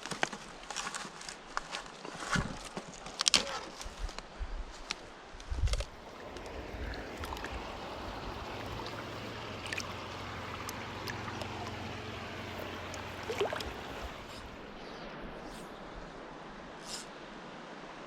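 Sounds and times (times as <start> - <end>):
stream water rushing: 5.8 - 18.0.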